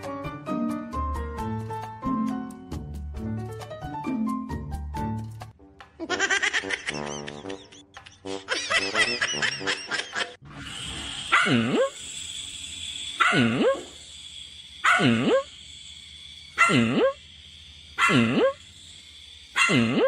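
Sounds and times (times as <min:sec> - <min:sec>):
small puppy barking: 0:13.2 - 0:13.8, 0:16.6 - 0:17.1, 0:19.6 - 0:19.8.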